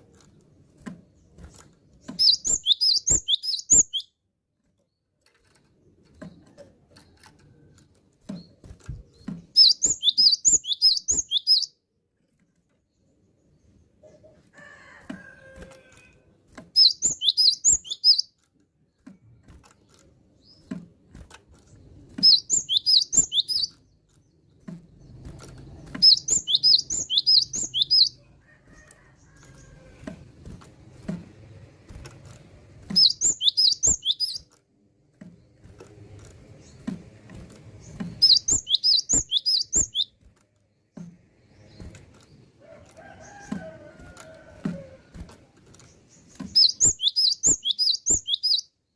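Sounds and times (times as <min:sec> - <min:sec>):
bird singing rapid high notes: 0:02.2 - 0:04.2, 0:09.5 - 0:11.8, 0:16.8 - 0:18.3, 0:22.2 - 0:23.8, 0:26.0 - 0:28.2, 0:32.9 - 0:34.5, 0:37.8 - 0:40.2, 0:46.2 - 0:48.8
soft ticks and knocks: 0:18.4 - 0:22.7, 0:23.3 - 0:26.3, 0:28.4 - 0:46.8.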